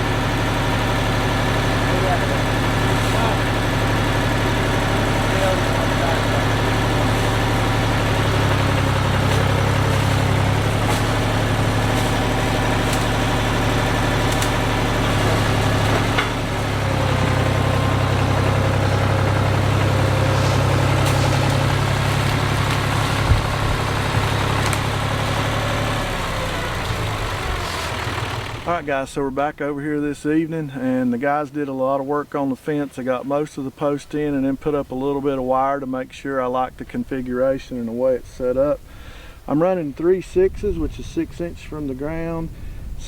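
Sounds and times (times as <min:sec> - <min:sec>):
engine running: 0:00.0 - 0:29.6.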